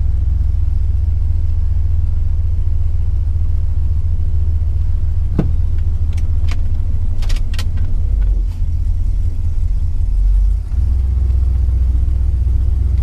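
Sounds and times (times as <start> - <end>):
car engine idling: 0.0 - 13.0
light clicks and rattles: 5.4 - 8.4.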